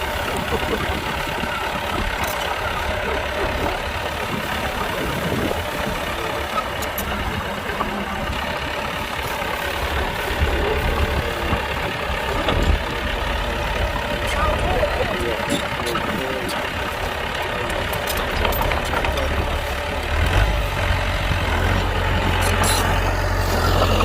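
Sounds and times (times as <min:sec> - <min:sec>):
heavy diesel engine rumbling: 0:00.0 - 0:24.0.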